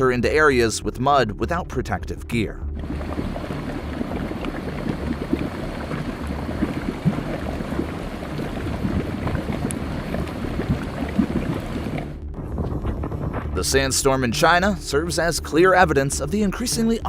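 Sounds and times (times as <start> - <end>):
thick mud bubbling and gurgling: 2.7 - 13.1.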